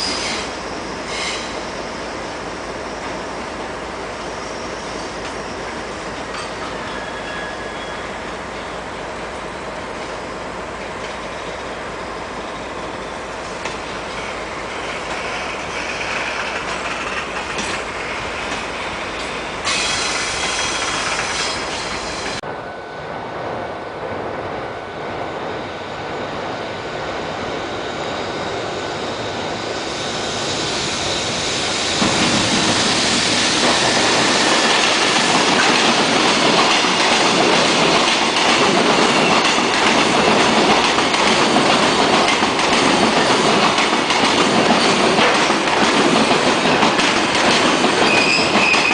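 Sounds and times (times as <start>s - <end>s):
train wheels clattering over rails: 12.5s - 22.4s, 31.1s - 48.9s.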